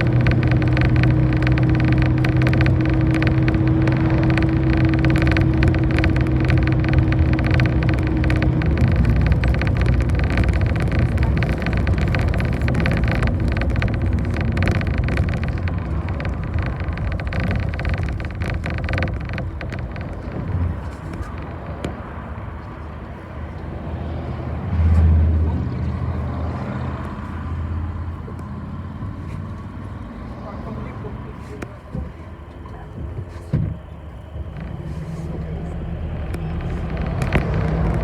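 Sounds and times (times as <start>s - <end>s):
rattling: 0.0s - 21.9s, 34.1s - 38.0s
bus engine running: 0.0s - 38.0s.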